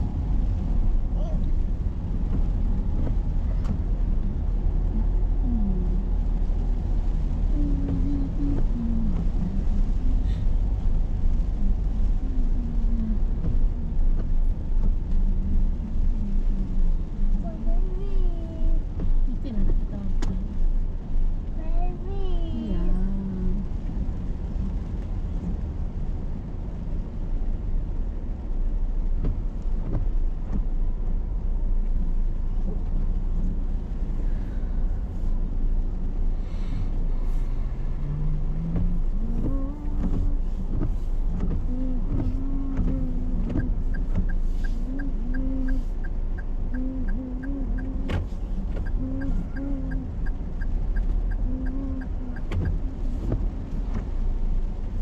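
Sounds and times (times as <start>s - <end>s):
car cabin rumble in heavy rain: 0.0s - 55.0s
regular ticking: 38.0s - 55.0s.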